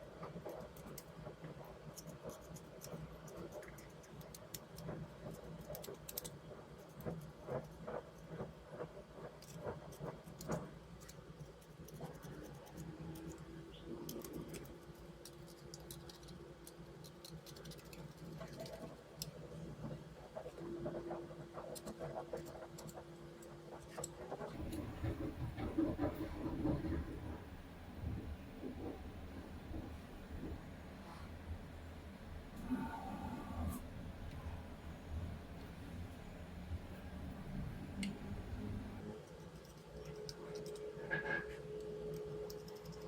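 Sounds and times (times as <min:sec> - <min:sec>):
light clicks taps and scratches: 0:00.0 - 0:31.4, 0:37.2 - 0:43.0
faint steady hum: 0:00.0 - 0:43.0
faint steady tone: 0:27.1 - 0:43.0.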